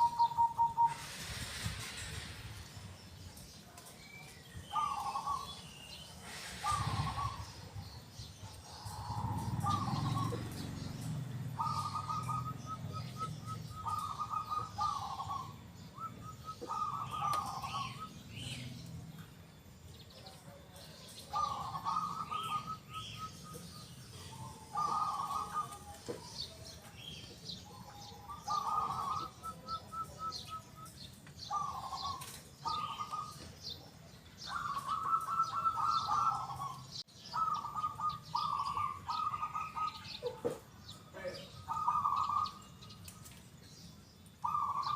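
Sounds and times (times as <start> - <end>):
dove cooing: 0.0 - 1.4, 4.7 - 5.6, 6.3 - 7.8, 8.4 - 18.6, 21.1 - 26.6, 27.6 - 30.8, 31.4 - 33.4, 34.4 - 40.6, 41.4 - 42.7, 44.4 - 44.9
small birds chirping: 0.0 - 44.9.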